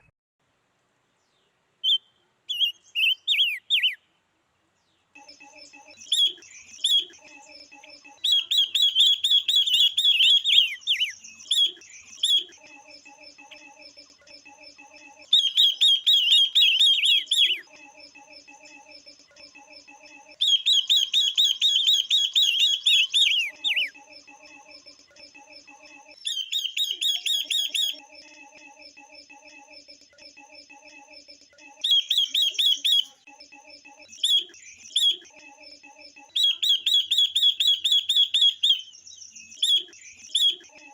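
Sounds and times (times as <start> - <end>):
soft steady bird chirping: 1.1 - 40.9
bird chirping trills: 1.2 - 4.2, 4.8 - 40.9.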